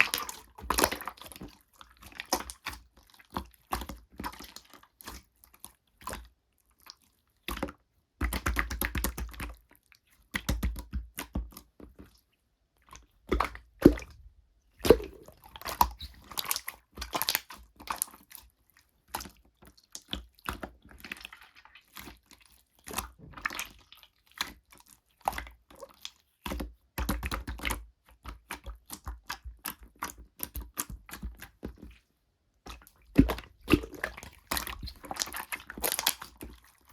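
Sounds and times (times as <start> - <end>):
slime squeezed by hand: 14.8 - 17.5, 32.7 - 36.8.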